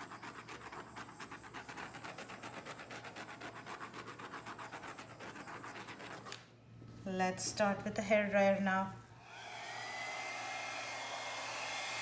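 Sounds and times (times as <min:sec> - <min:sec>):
rhythmic hissing tool: 0:09.2 - 0:12.0.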